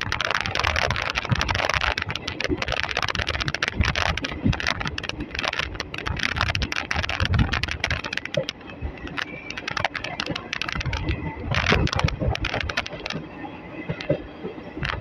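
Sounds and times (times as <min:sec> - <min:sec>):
rush of wind: 0:00.0 - 0:15.0
wheels clattering on track: 0:00.0 - 0:15.0.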